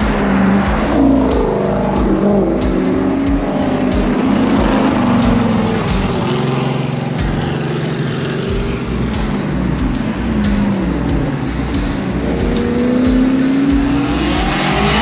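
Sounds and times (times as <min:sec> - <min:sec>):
car engines revving: 0:00.0 - 0:15.0
music playing: 0:00.0 - 0:15.0.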